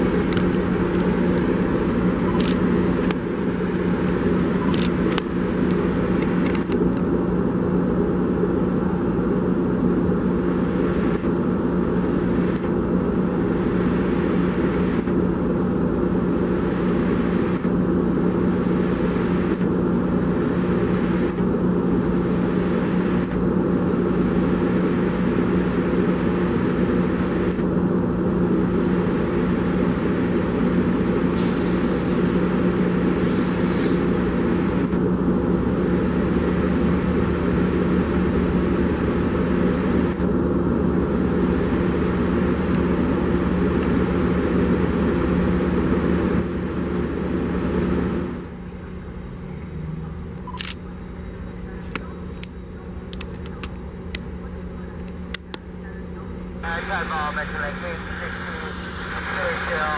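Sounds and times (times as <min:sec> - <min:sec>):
diesel train engine humming: 0:00.0 - 0:59.9
air hisses: 0:31.4 - 0:32.2, 0:33.2 - 0:34.1.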